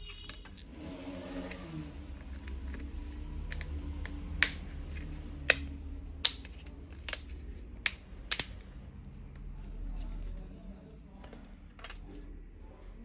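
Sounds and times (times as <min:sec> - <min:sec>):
tools and plastic parts clicking: 0:00.0 - 0:00.7, 0:01.5 - 0:08.7.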